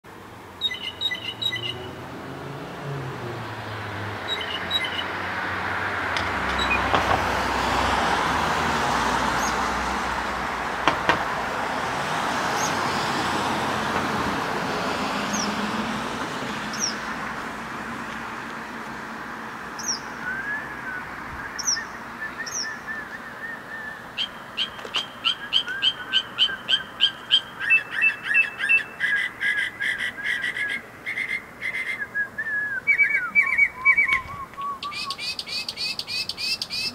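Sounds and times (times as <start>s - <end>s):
bird chirping: 0.6s - 2.0s, 4.2s - 5.2s, 6.5s - 6.9s, 15.3s - 15.6s, 16.7s - 17.0s, 19.8s - 36.9s
vehicle passing: 0.8s - 28.4s
thin downward whistles: 20.2s - 24.0s, 31.7s - 35.2s.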